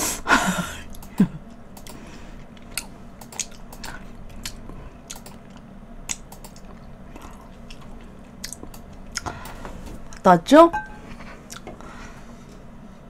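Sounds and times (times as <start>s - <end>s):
chewing food: 2.4s - 9.5s, 11.4s - 11.7s
wet mouth clicks: 2.7s - 5.5s, 8.4s - 9.2s.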